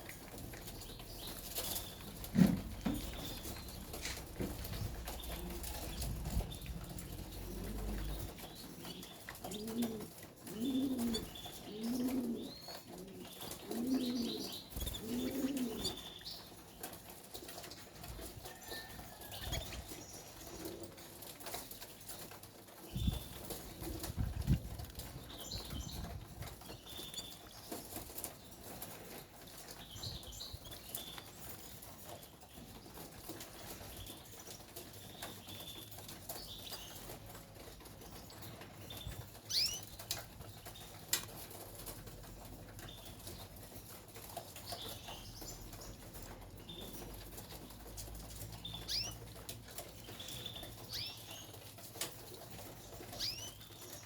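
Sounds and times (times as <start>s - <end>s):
canaries chirping: 0.0s - 54.0s.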